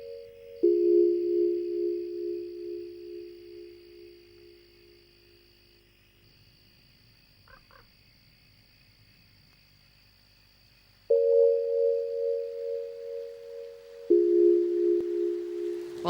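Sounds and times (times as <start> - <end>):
sustained singing bowl tone: 0.0 - 5.4, 11.1 - 16.0.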